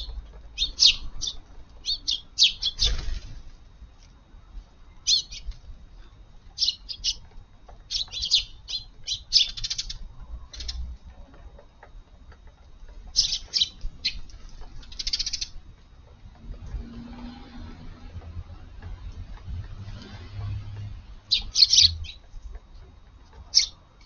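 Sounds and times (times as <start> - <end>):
sparrows chirping: 0.0 - 3.4, 4.9 - 11.0, 12.9 - 15.6, 19.3 - 22.6, 23.4 - 23.9.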